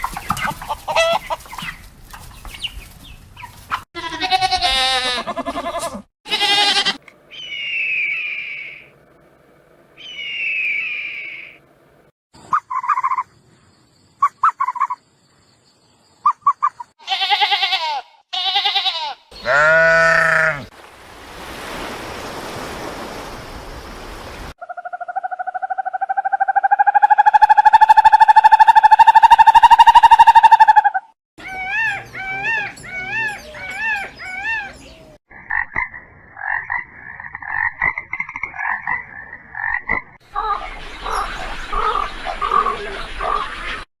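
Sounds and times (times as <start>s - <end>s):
loud animal cries: 4.0s - 8.8s, 17.0s - 20.7s, 26.2s - 34.8s
pitched animal calls: 16.3s - 20.7s, 24.6s - 35.7s.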